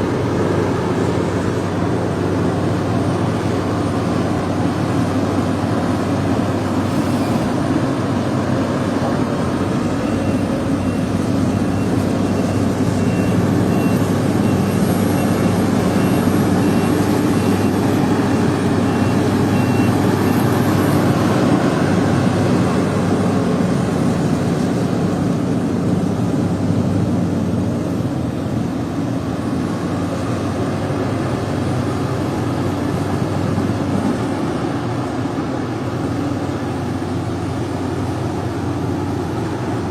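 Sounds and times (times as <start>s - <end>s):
heavy machinery diesel engine: 0.0s - 39.9s
faint warning beep: 9.7s - 18.1s, 18.8s - 20.9s.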